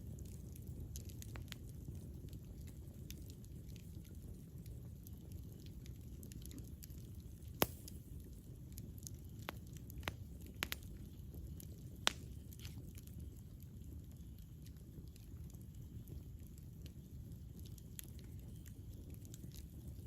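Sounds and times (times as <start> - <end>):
campfire crackling: 0.0 - 20.0
low rumble of flames: 0.0 - 20.0
sharp fire pops: 7.2 - 13.1.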